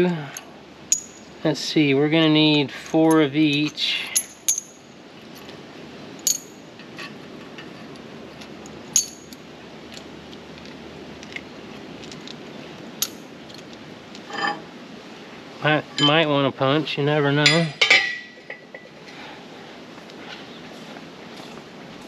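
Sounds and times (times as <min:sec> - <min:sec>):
background hiss: 0:00.0 - 0:22.0
metal bolts and nuts clinking: 0:00.3 - 0:01.3, 0:02.4 - 0:05.5, 0:06.2 - 0:07.8, 0:08.9 - 0:11.4, 0:13.0 - 0:14.6, 0:15.8 - 0:16.3, 0:17.4 - 0:19.0.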